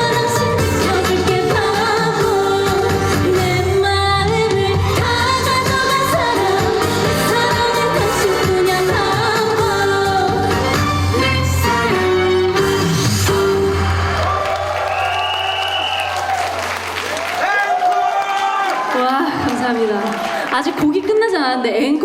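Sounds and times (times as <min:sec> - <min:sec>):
woman singing: 0:00.0 - 0:12.5.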